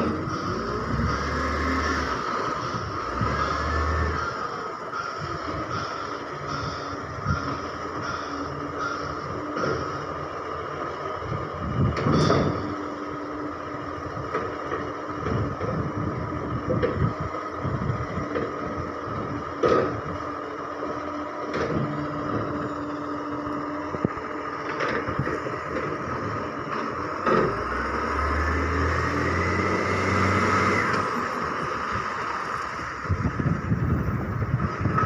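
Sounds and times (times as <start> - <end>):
garbage truck mechanical whine: 0.0 - 35.0
sharp knocks and clunks: 19.6 - 20.0.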